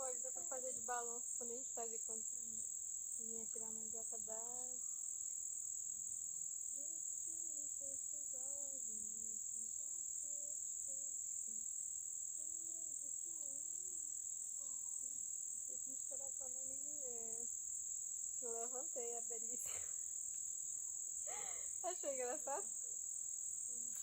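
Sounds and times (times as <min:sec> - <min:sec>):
quiet voice murmuring: 0:00.0 - 0:02.6
insect chorus drone: 0:00.0 - 0:24.0.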